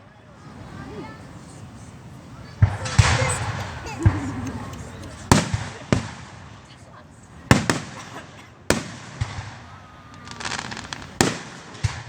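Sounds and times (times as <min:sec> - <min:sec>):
fireworks crackling: 0:00.5 - 0:12.0
fireworks bangs: 0:00.7 - 0:12.0.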